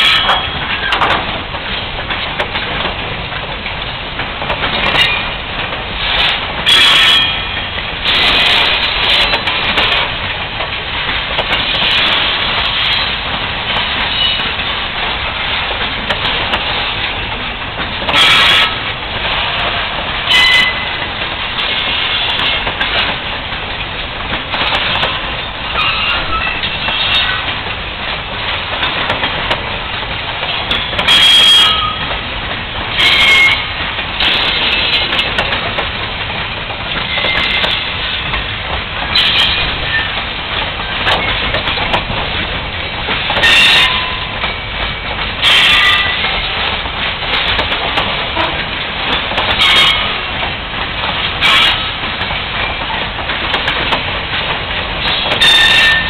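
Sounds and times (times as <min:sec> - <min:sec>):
train wheels rumbling on rail: 0:00.0 - 0:56.0
high wheel squeals: 0:06.6 - 0:07.6, 0:25.7 - 0:27.4, 0:30.6 - 0:32.1, 0:55.0 - 0:56.0.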